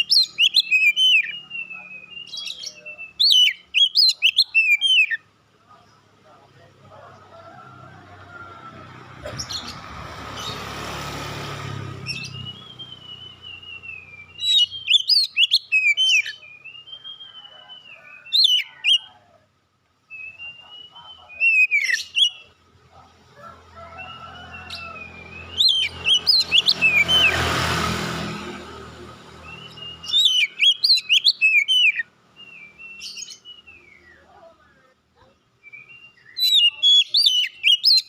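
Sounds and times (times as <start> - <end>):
bird singing whistled song: 0.0 - 5.2, 12.1 - 19.1, 20.1 - 22.5, 24.7 - 27.4, 29.4 - 34.5, 35.6 - 38.0.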